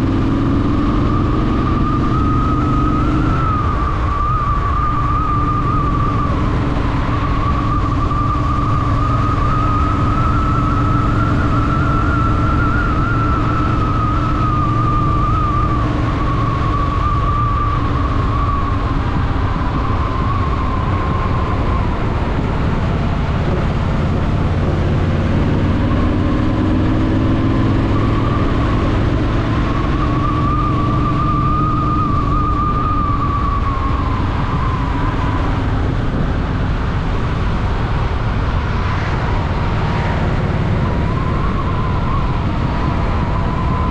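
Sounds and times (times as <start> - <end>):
wavering high tone: 0.0 - 36.4, 39.8 - 43.9.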